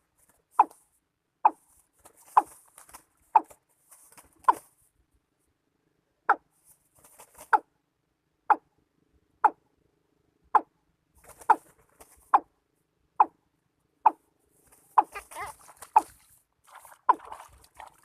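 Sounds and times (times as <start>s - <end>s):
bird clucking calls: 14.9s - 16.2s.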